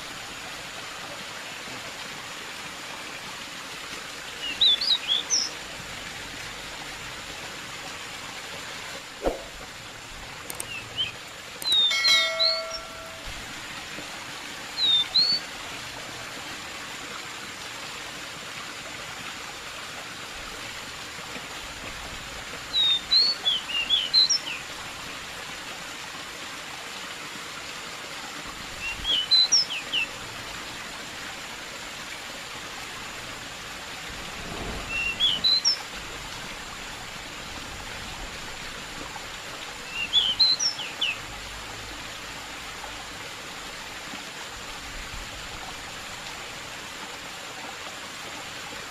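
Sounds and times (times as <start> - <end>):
flowing water: 0.0 - 48.9
bird singing whistled notes: 4.4 - 5.5, 10.6 - 13.2, 14.8 - 15.4, 22.8 - 24.6, 28.8 - 30.1, 34.9 - 35.8, 39.9 - 41.2.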